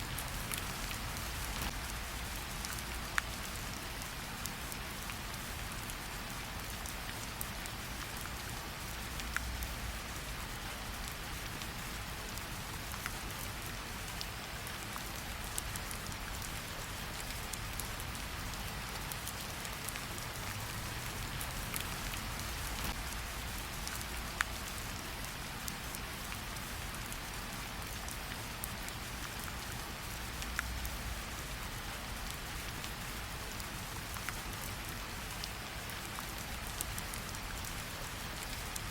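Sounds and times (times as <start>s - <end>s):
rain hissing: 0.0s - 3.7s.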